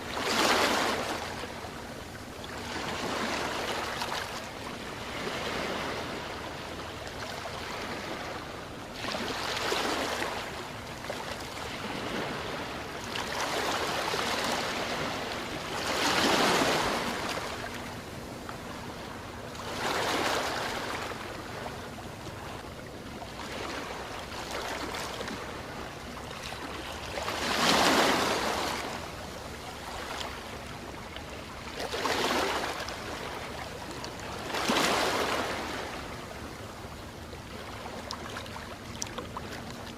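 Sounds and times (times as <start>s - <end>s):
sea waves breaking on beach: 0.0s - 1.8s, 2.5s - 21.8s, 23.3s - 36.6s.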